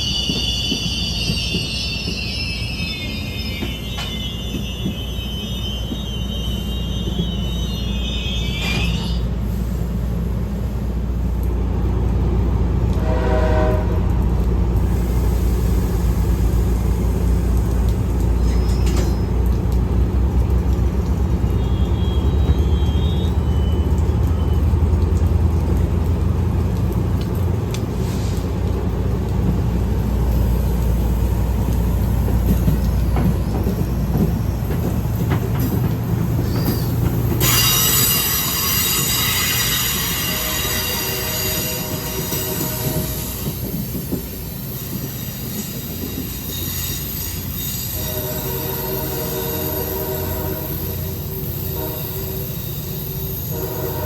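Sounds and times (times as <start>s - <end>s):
high-pitched wheel squeal: 0.0s - 9.3s, 36.4s - 43.5s
train rumbling past: 0.0s - 54.0s
short train horn toot: 13.0s - 14.0s, 37.4s - 43.4s, 47.8s - 52.6s, 53.4s - 54.0s.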